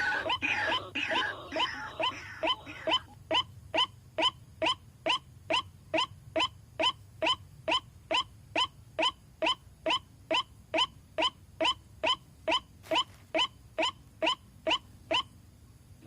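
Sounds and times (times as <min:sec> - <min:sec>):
waterhen calling: 0:00.0 - 0:03.5.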